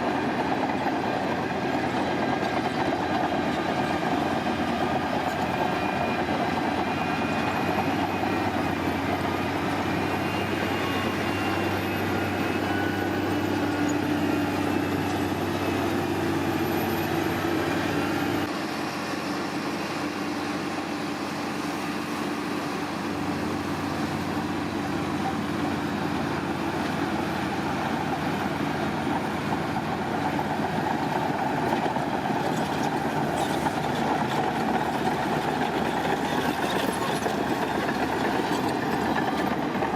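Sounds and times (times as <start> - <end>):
construction machinery diesel engine: 0.0 - 39.9.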